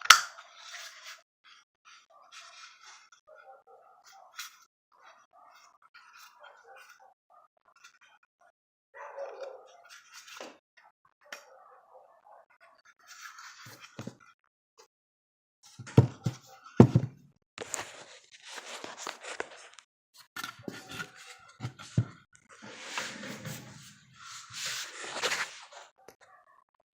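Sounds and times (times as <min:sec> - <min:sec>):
scraping of tools and parts: 0:20.4 - 0:25.9.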